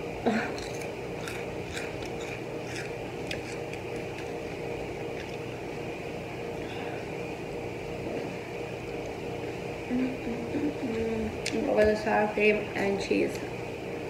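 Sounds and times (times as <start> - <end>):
steady background hum: 0.0 - 14.0
crunchy snack chewing: 0.4 - 5.6.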